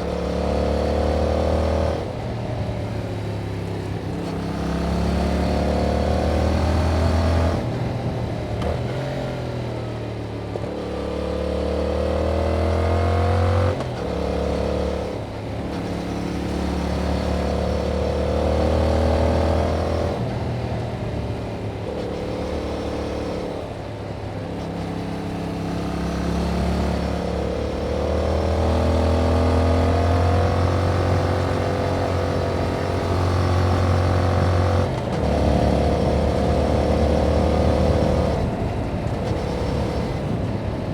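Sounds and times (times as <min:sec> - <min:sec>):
motorcycle engine revving: 0:10.6 - 0:40.9.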